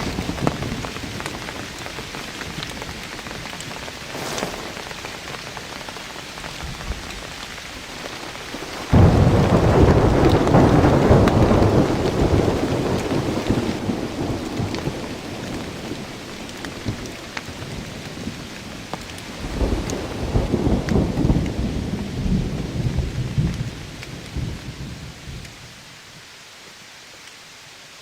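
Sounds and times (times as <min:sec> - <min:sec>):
thunder clap rumbling: 0:00.0 - 0:05.7, 0:08.1 - 0:25.5
steady rain falling: 0:00.0 - 0:28.0.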